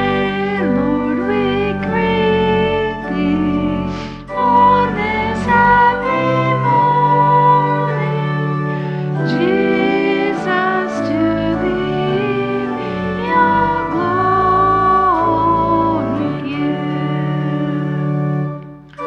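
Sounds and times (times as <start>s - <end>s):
congregation singing a hymn: 0.0s - 19.0s
instrumental accompaniment: 0.0s - 19.0s.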